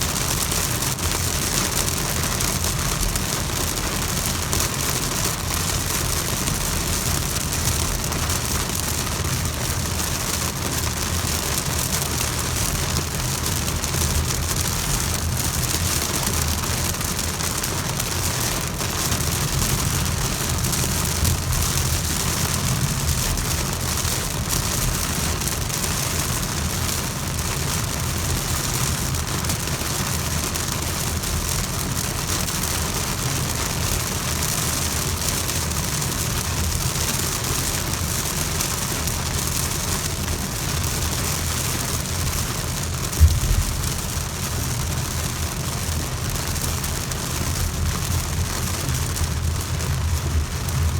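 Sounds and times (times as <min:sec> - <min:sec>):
heavy rain falling: 0:00.0 - 0:50.9
low rumble: 0:43.1 - 0:44.9.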